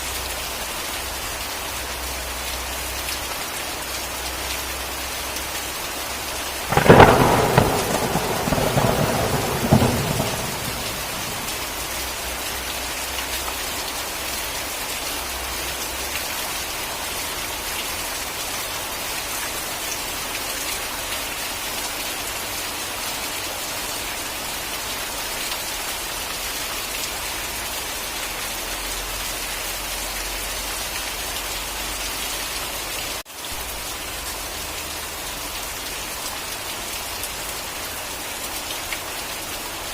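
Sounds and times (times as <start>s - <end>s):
steady rain: 0.0s - 39.9s
thunder clap and rumble: 6.7s - 12.0s.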